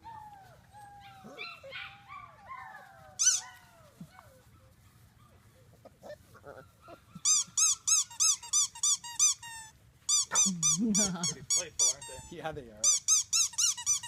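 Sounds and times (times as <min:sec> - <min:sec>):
puppies whimpering: 0:00.0 - 0:04.4, 0:06.0 - 0:12.3
puppy yelping: 0:00.0 - 0:04.8, 0:06.0 - 0:12.3
high squeaky cries: 0:03.2 - 0:03.6, 0:06.9 - 0:14.0.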